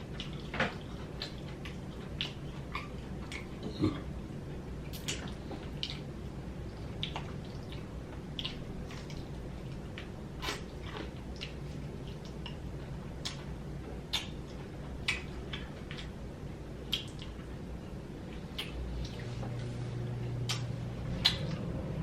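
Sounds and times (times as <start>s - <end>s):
person chewing food: 0.0s - 16.2s, 16.8s - 21.7s
low hum: 14.7s - 22.0s.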